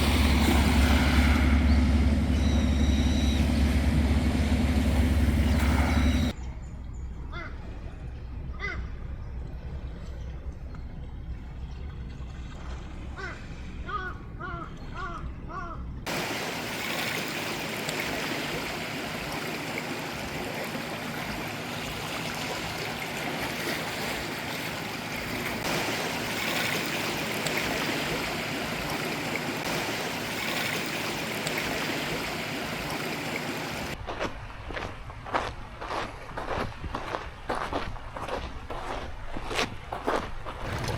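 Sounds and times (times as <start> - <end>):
sea waves washing ashore: 0.0 - 6.4, 16.1 - 40.9
low hum: 0.0 - 40.9.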